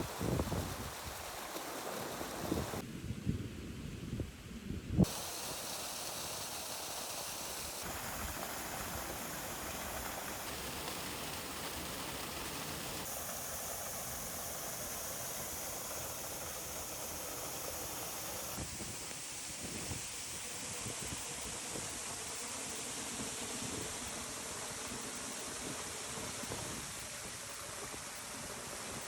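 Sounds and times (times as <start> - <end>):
wind buffeting microphone: 0.0 - 1.4
small waterfall rushing: 0.0 - 2.8, 5.0 - 29.0.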